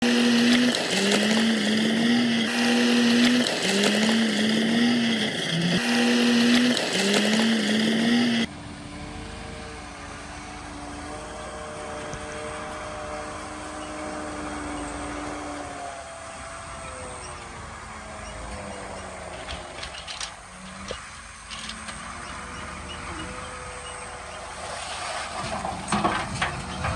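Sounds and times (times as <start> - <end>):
heavy diesel engine running: 0.0 - 8.5.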